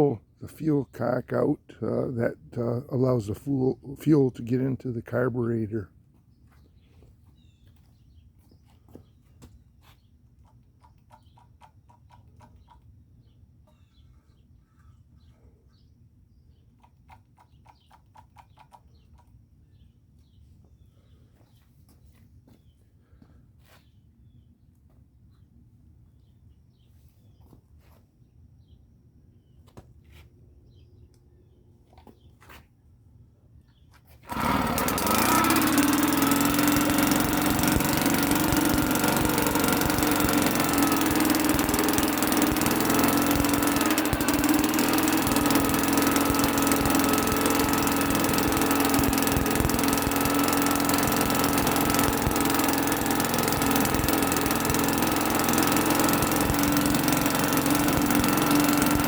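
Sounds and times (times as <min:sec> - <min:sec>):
outboard engine running: 0:34.3 - 0:59.0.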